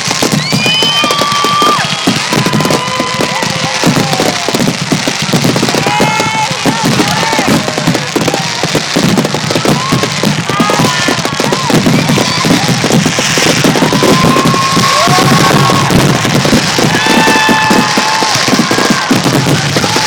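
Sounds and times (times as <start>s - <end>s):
fireworks bursting and crackling: 0.0s - 20.0s
firework whistles gliding in pitch: 0.1s - 6.2s.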